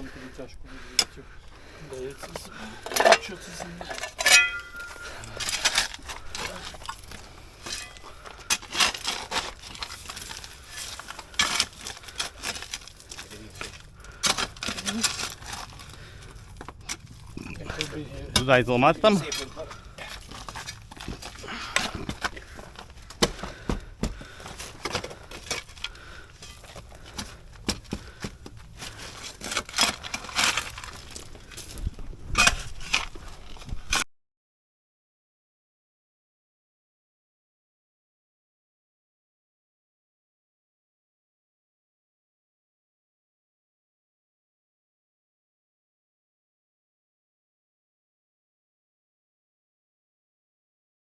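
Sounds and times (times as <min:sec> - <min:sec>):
scraping soil and gravel by hand: 0:03.0 - 0:34.0.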